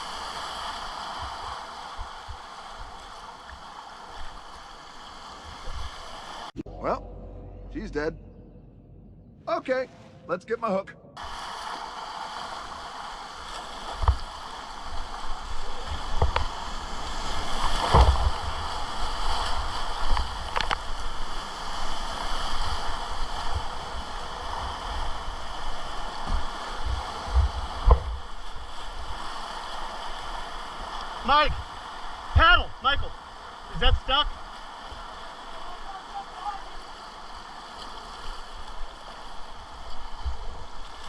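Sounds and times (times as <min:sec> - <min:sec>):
whitewater rapids rushing: 0:00.0 - 0:07.0, 0:11.2 - 0:41.0
short dull thumps: 0:27.3 - 0:28.3.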